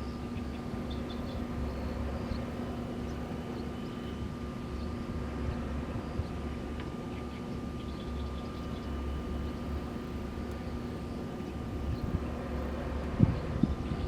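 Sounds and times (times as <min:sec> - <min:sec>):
wind turbines humming: 0:00.0 - 0:14.0
wind blowing in gusts: 0:10.2 - 0:14.0.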